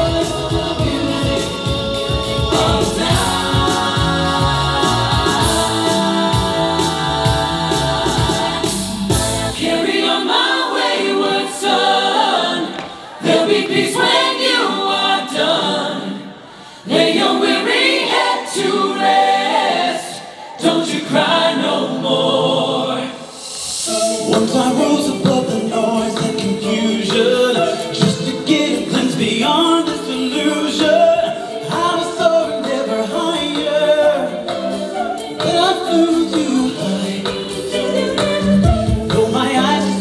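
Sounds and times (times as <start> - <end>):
vocal group singing in harmony: 0.0 - 40.0
low bass: 6.4 - 9.6.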